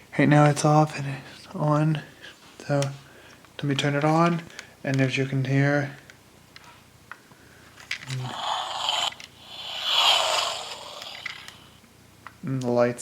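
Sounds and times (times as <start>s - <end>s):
toy engine whoosh sound effect: 8.1s - 11.7s.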